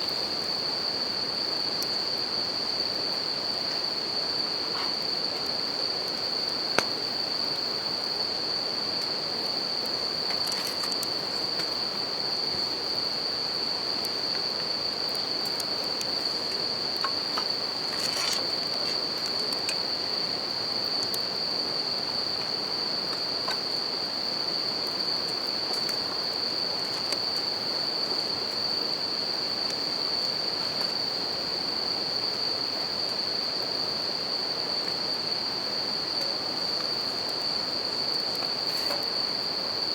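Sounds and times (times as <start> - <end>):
crickets trilling: 0.0 - 39.9
campfire crackling: 8.4 - 20.1.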